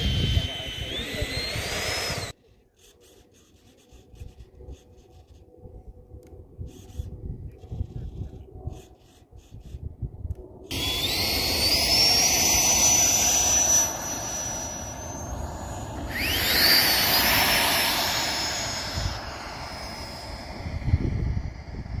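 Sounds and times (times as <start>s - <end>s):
electric ducted fans whining: 0.0s - 2.4s, 10.7s - 22.0s.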